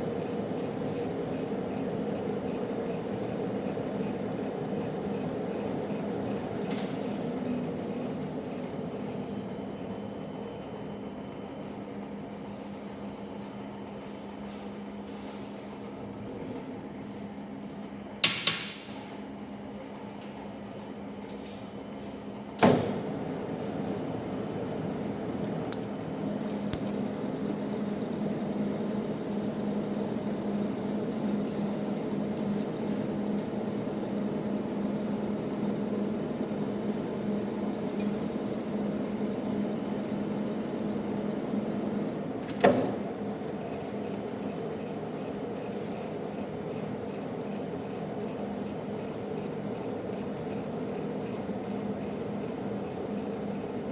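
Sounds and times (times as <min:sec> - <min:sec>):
metal lathe gear hum: 0:26.1 - 0:42.3.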